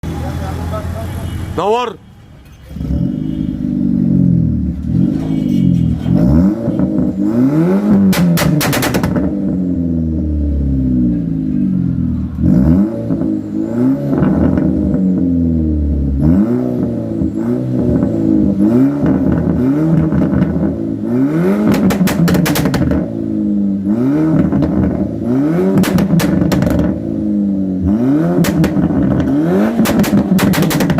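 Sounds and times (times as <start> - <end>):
car engine revving: 2.7 - 30.9
exhaust crackles and pops: 8.0 - 9.5, 19.0 - 20.8, 21.6 - 23.1, 24.3 - 25.1, 25.7 - 27.0, 28.3 - 30.9.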